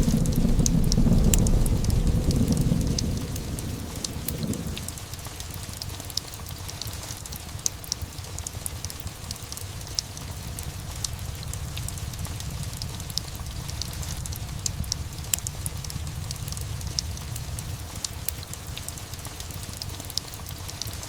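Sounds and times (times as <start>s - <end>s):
thunder rumble: 0.0s - 5.6s, 10.1s - 18.0s
steady rain: 0.0s - 21.0s.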